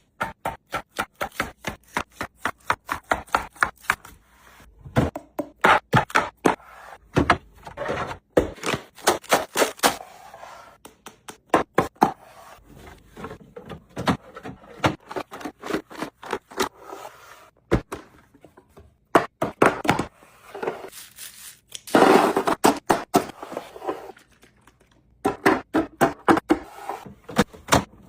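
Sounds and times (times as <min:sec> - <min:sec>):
food containers clacking and scraping: 0:12.1 - 0:17.3.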